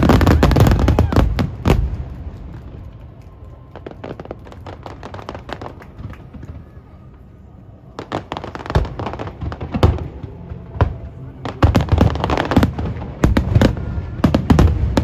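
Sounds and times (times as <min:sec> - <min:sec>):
fireworks crackling pops: 0:00.0 - 0:07.2, 0:07.9 - 0:15.0
fireworks bangs: 0:00.0 - 0:15.0.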